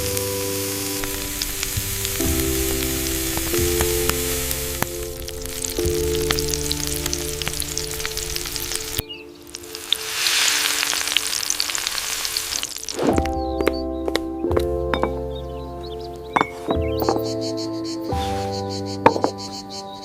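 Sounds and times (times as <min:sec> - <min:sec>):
steady tone: 0:00.0 - 0:11.7
fish sizzling over wood fire: 0:00.0 - 0:13.4
fire crackles: 0:00.0 - 0:17.4.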